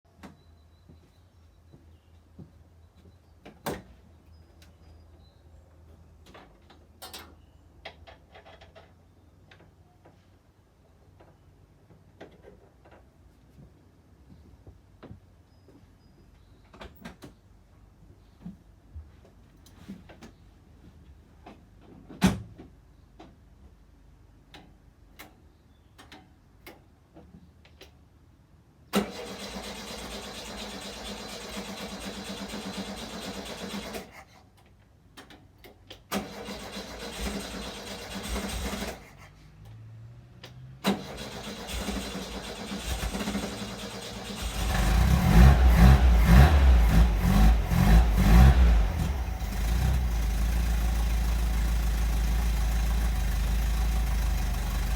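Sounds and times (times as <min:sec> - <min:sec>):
starter motor cranking: 0:29.0 - 0:34.1, 0:36.1 - 0:39.1, 0:40.9 - 0:50.3
engine running unevenly: 0:41.4 - 0:54.9.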